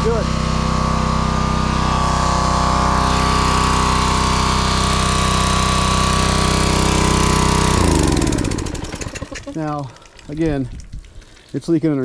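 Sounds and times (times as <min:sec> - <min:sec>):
pressure washer engine running: 0:00.0 - 0:10.6.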